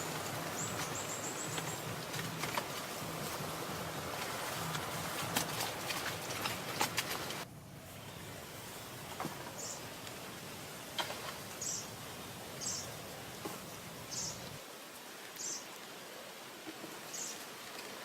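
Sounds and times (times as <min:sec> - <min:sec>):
steady background hiss: 0:00.0 - 0:18.0
small bird chirping: 0:14.1 - 0:14.4.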